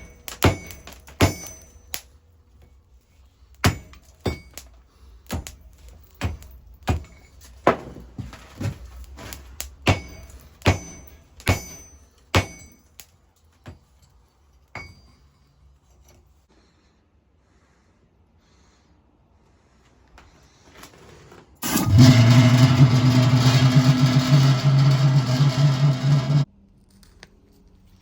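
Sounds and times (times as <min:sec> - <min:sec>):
ringing hammer blows: 0:09.9 - 0:12.8, 0:21.6 - 0:26.5.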